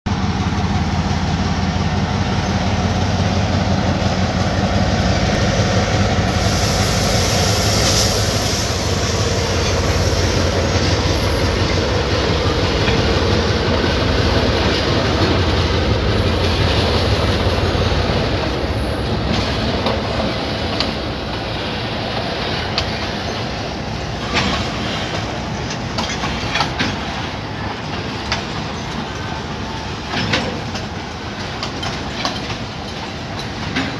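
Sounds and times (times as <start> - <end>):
diesel locomotive engine drone: 0.1 - 33.9
train wheels rolling: 0.2 - 33.9
wheels clicking over rail joints: 7.8 - 33.9.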